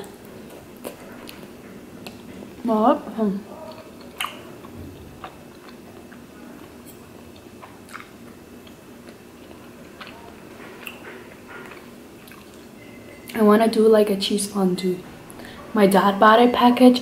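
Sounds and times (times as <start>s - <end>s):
chewing chewy food: 0.0s - 2.4s, 3.5s - 13.4s.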